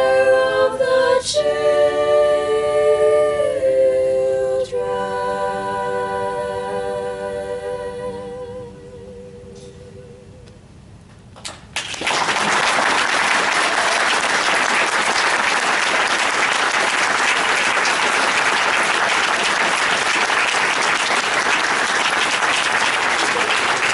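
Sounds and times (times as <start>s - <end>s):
lone claps: 11.4s - 23.9s
audience applause: 11.8s - 23.9s.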